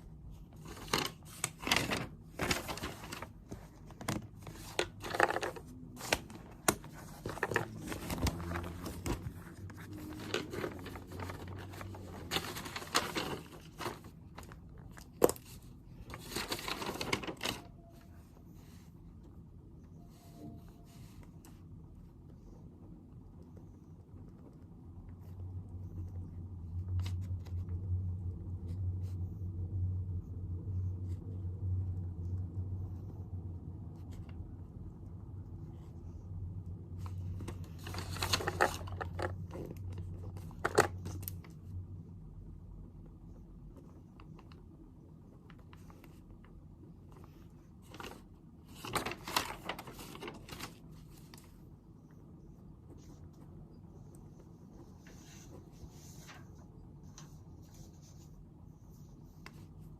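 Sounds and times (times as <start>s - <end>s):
rustling and scraping: 0.0s - 19.4s, 36.9s - 41.8s, 45.3s - 59.9s.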